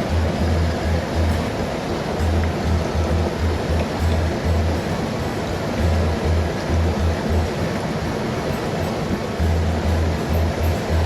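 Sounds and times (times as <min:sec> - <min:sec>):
low pulsing rumble: 0:00.0 - 0:11.0
stream rushing over rocks: 0:00.0 - 0:11.0.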